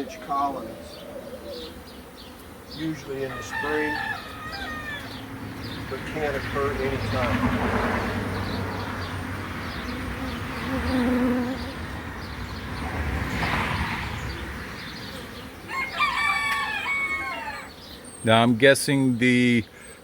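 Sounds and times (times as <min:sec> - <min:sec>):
rooster crowing: 0:03.1 - 0:05.3, 0:15.6 - 0:17.9.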